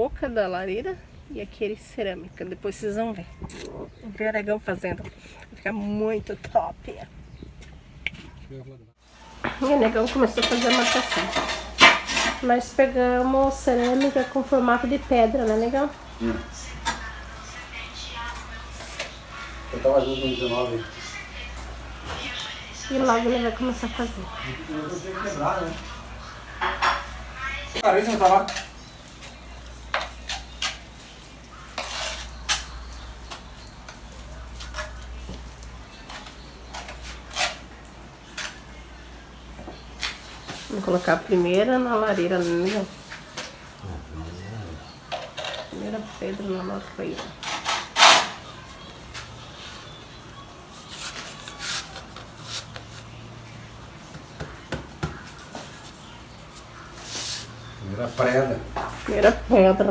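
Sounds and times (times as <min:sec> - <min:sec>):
tile scraping: 0:09.4 - 0:12.5.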